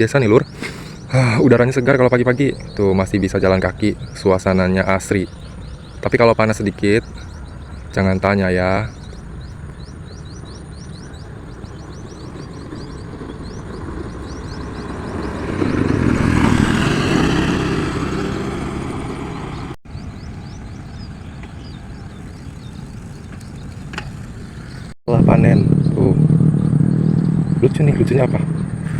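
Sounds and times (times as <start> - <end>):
insects chirping: 0.0 - 18.6
motor vehicle passing by: 0.0 - 28.9.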